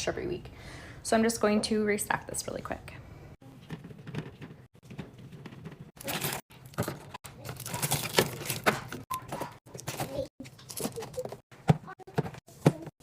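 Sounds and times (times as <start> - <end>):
plastic snack packets crinkling: 6.0 - 9.0.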